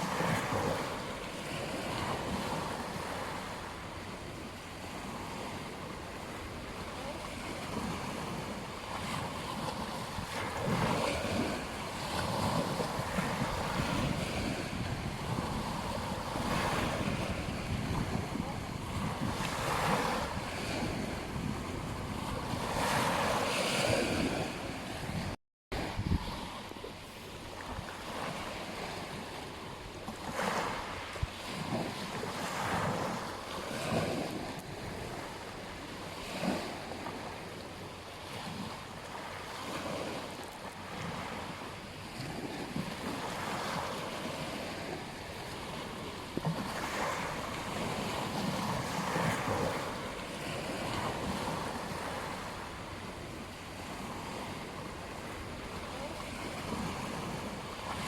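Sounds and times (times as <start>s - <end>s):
ocean waves breaking on beach: 0.0s - 58.0s
wind buffeting microphone: 4.0s - 37.2s.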